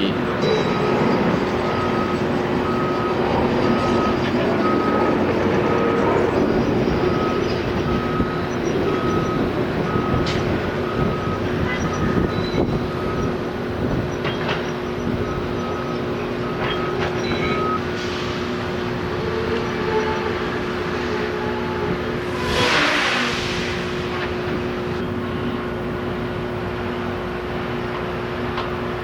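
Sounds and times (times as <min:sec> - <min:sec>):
heavy engine running: 0:00.0 - 0:29.0
reversing alarm beeping: 0:00.4 - 0:18.3.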